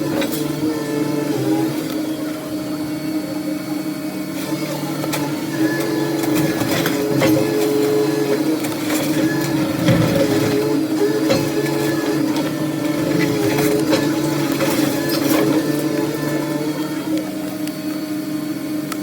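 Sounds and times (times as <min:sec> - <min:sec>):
machine humming: 0:00.0 - 0:19.0
knocks and clatter: 0:06.2 - 0:16.4.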